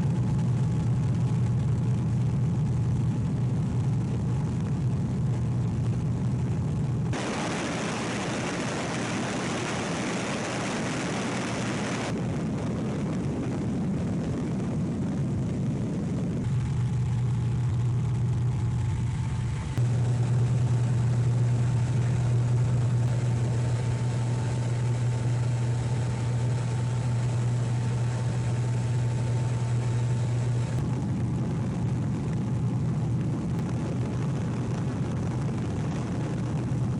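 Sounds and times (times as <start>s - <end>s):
propeller plane engine droning: 0.0s - 36.9s
broad rushing noise: 5.2s - 36.9s
thin high whine: 7.1s - 12.2s, 16.0s - 32.0s.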